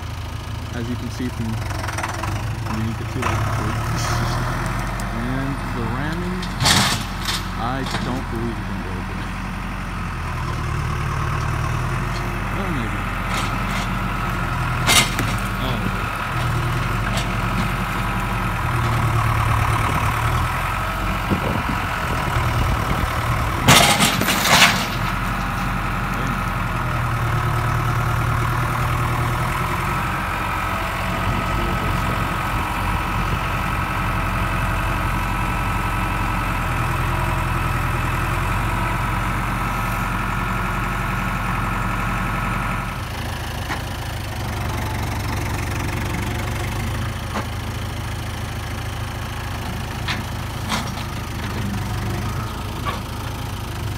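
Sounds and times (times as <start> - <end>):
large machine engine running: 0.0 - 53.9.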